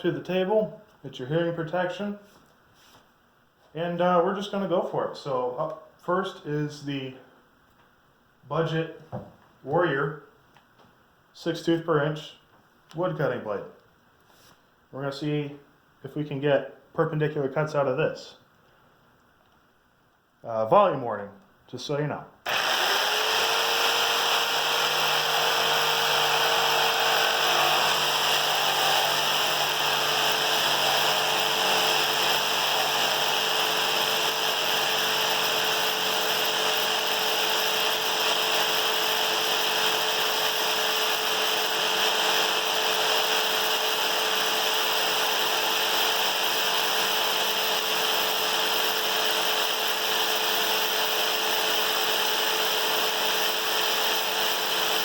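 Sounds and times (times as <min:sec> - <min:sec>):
jigsaw motor whine: 0:22.5 - 0:55.0.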